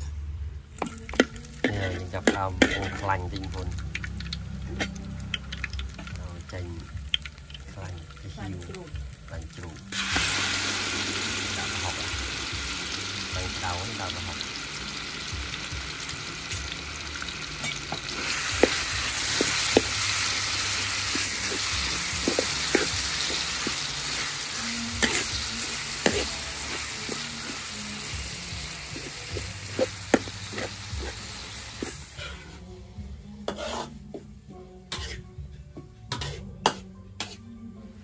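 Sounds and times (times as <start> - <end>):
food deep-frying in oil: 0.7 - 32.1
utensil striking pan: 0.8 - 6.2, 17.5 - 28.0, 29.0 - 31.2.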